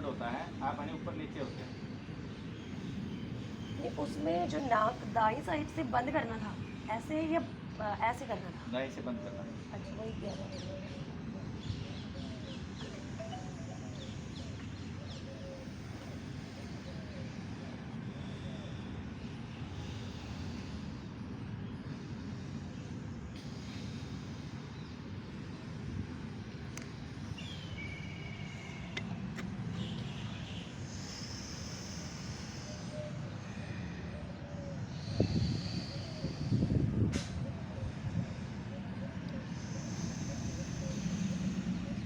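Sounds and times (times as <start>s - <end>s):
birds chirping: 0.0s - 42.0s
high steady chirring: 12.9s - 14.6s.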